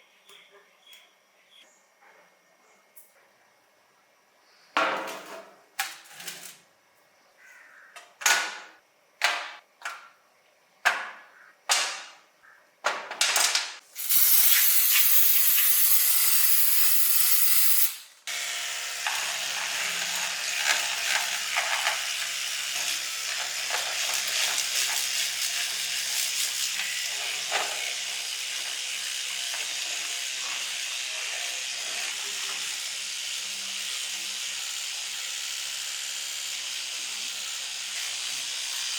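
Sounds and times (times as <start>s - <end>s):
hissing spray: 13.9s - 18.2s.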